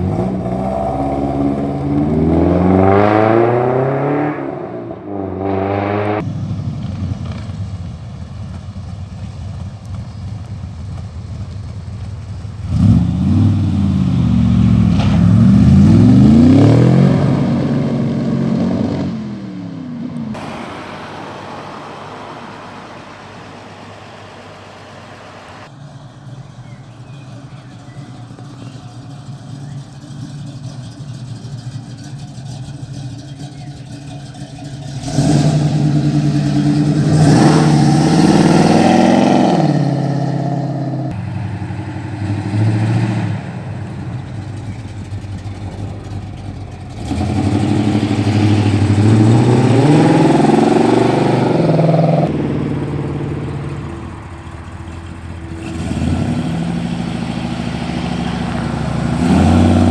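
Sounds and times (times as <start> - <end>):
car engines revving: 0.0 - 59.9
quiet engine hum: 6.2 - 16.4, 19.9 - 38.1, 40.9 - 59.9.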